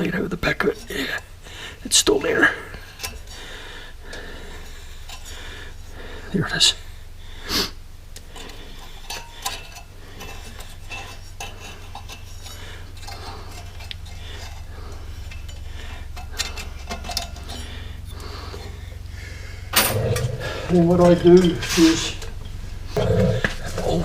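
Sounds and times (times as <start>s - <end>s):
steady low hum: 0.0s - 24.0s
metal tool scraping and clicking: 2.9s - 3.3s, 8.2s - 18.7s.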